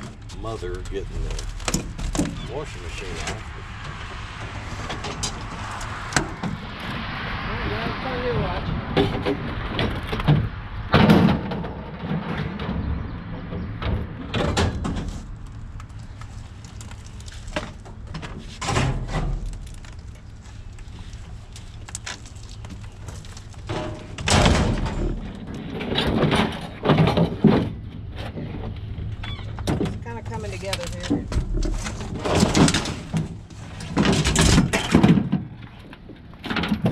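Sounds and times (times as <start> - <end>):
scrap metal clunks and rattles: 8.9 - 15.6, 17.1 - 19.9, 21.9 - 36.9.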